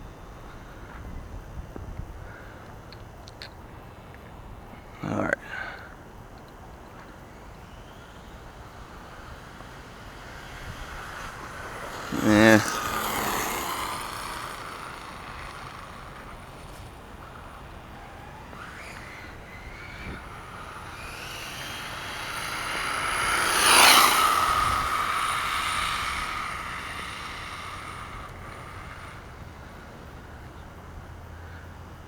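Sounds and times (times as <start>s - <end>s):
toy truck engine revving: 5.1s - 31.9s.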